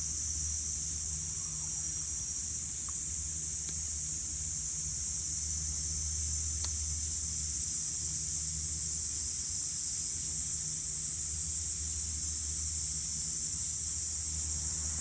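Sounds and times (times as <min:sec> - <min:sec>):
cicadas droning: 0:00.0 - 0:15.0
small click: 0:06.6 - 0:06.8.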